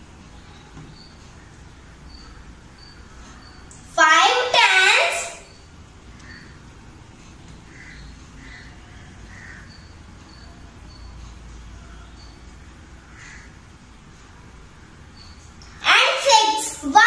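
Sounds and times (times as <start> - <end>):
faint high chirps: 0.1 - 6.6, 7.2 - 12.8
faint bird calls: 4.8 - 13.7.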